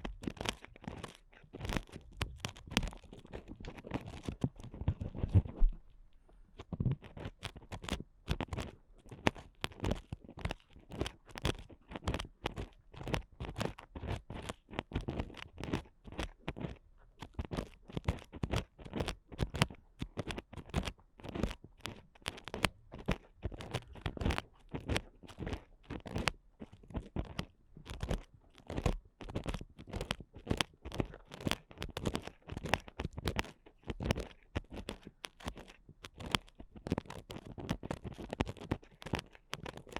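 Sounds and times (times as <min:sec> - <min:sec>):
ear picks scratching microphone: 0:00.0 - 0:05.9, 0:06.6 - 0:39.9.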